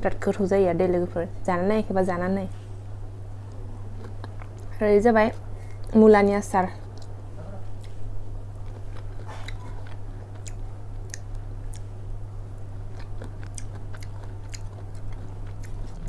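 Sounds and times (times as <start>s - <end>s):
steady low hum: 0.0s - 16.0s
person chewing food: 3.4s - 5.9s, 6.8s - 16.0s
food crunch: 8.5s - 11.9s, 12.9s - 16.0s.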